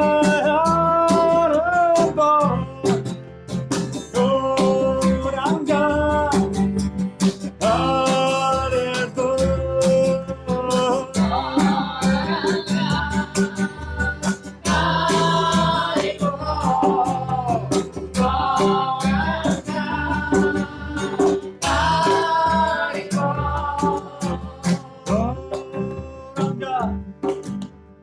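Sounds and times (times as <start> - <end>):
strummed acoustic guitar: 0.0 - 28.0
people singing a devotional chant: 11.1 - 25.8.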